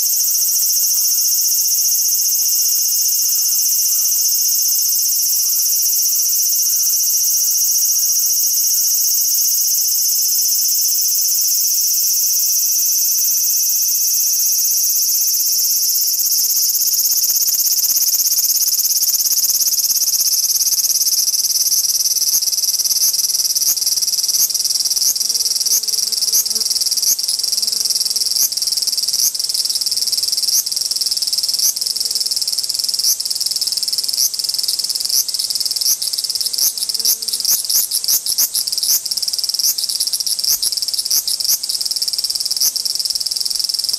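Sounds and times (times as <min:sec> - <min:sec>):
pulsing insect call: 0:00.0 - 0:29.9
cicadas buzzing: 0:00.0 - 0:43.9.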